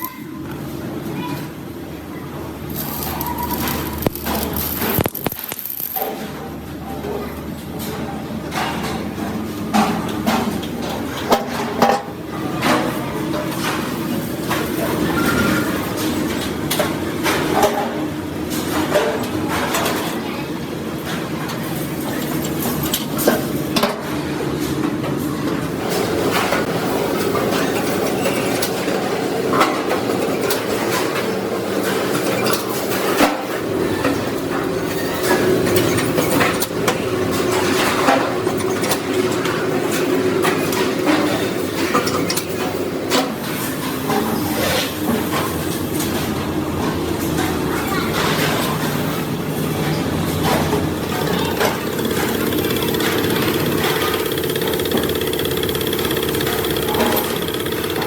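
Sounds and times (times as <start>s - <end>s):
machine running: 2.4s - 6.7s, 49.1s - 58.0s.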